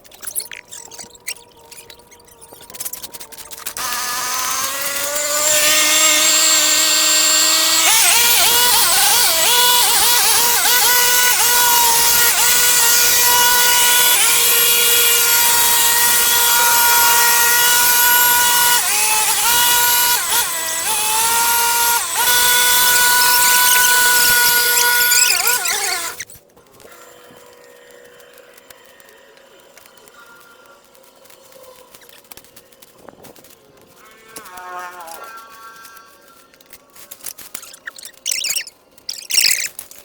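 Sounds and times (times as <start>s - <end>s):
small power tool motor: 3.7s - 30.1s, 34.3s - 39.8s.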